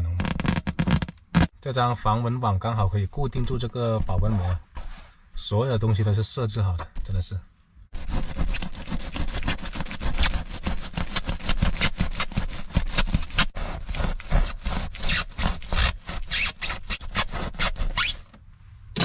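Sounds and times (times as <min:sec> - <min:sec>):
blade sawing through insulation: 0:08.0 - 0:18.3.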